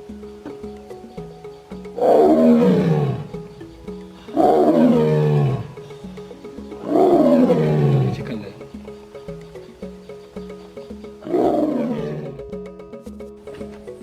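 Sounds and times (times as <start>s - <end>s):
background music: 0.0s - 14.0s
tiger roaring: 2.0s - 3.6s, 4.2s - 6.0s, 6.8s - 8.4s, 11.2s - 12.4s.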